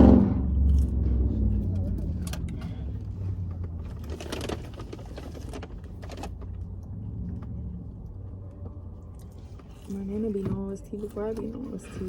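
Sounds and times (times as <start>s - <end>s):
crackly rustling: 3.1s - 7.6s.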